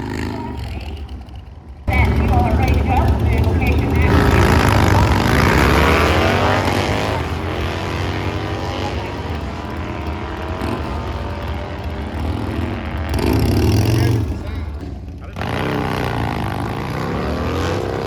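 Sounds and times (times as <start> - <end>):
racing engine at full throttle: 0.0 - 18.0.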